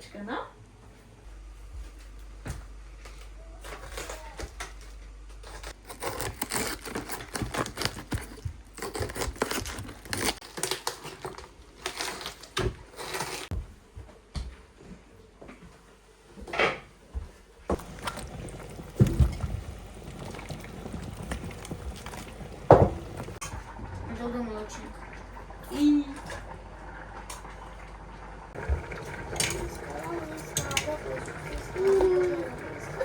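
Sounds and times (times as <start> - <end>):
rustling and crinkling: 1.6 - 16.5, 17.2 - 23.4
tearing sounds: 5.4 - 13.5.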